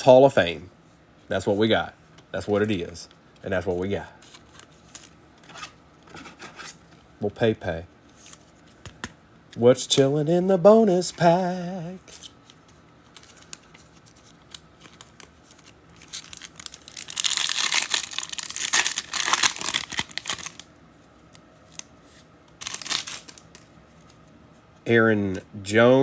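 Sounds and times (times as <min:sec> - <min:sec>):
card pack wrapper tearing and crinkling: 0:13.1 - 0:20.7, 0:22.6 - 0:23.7.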